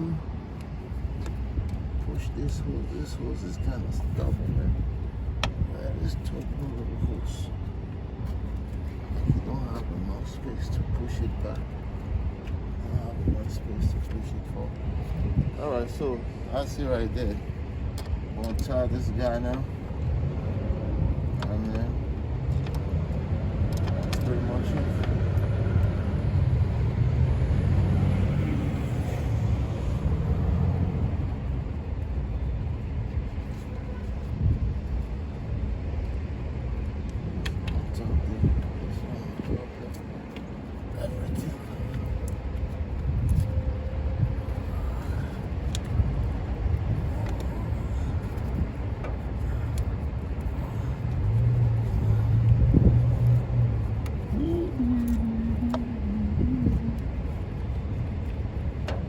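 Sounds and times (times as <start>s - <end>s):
passing vehicle rumble: 0.0s - 59.0s
vehicle passing by: 22.2s - 32.2s, 40.9s - 58.2s.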